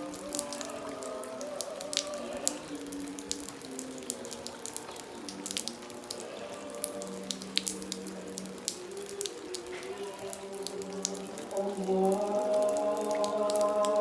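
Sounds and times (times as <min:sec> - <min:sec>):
drips and splashes: 0:00.0 - 0:14.0
heavy rain pouring: 0:00.0 - 0:14.0.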